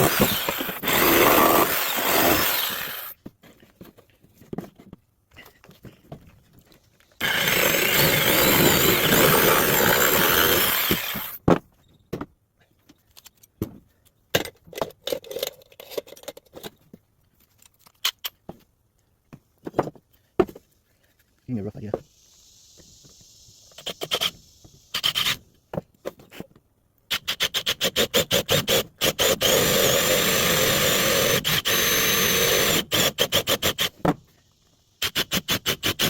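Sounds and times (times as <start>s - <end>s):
woodworking power tool running: 0.0s - 3.1s, 7.2s - 11.4s.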